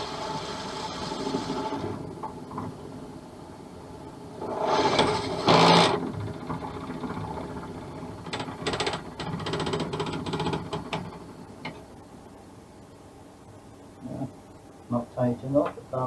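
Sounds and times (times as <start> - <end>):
lathe rattling: 4.4 - 11.4.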